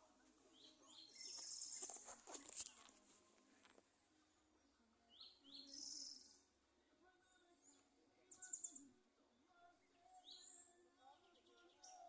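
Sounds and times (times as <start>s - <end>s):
bird chirps: 0.5s - 2.1s, 5.1s - 6.4s, 7.6s - 8.9s.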